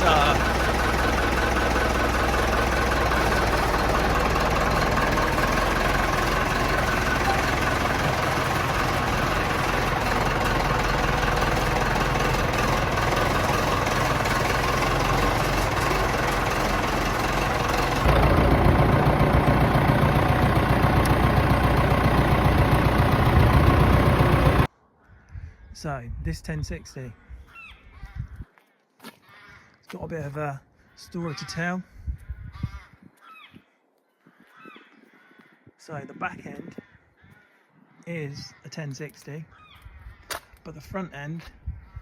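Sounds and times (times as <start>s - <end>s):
tractor diesel engine idling: 0.0s - 24.7s.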